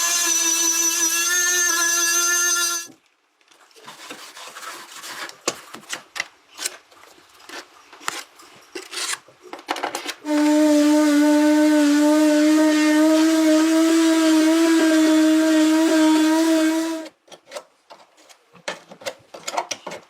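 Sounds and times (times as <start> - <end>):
power tool whining: 0.0 - 2.9
scraping and rubbing on a surface: 3.6 - 9.2.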